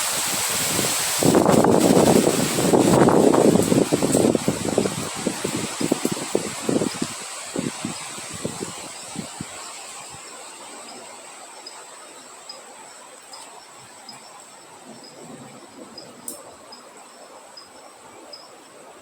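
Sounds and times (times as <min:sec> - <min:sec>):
wind gusts rumbling: 0:00.0 - 0:10.3, 0:14.6 - 0:17.1
faint insect chirps: 0:00.7 - 0:19.0
high-pitched insect drone: 0:04.3 - 0:18.9.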